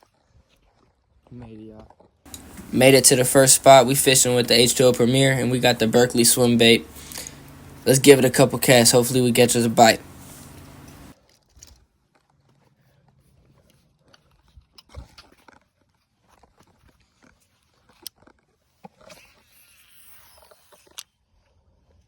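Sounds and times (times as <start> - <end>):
soft hiss: 2.3 - 11.1.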